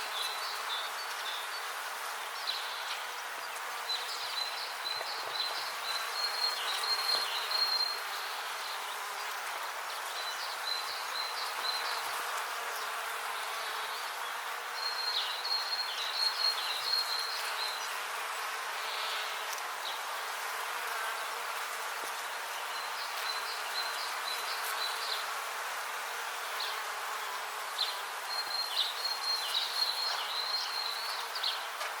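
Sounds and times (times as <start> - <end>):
bees buzzing: 0.0 - 32.0.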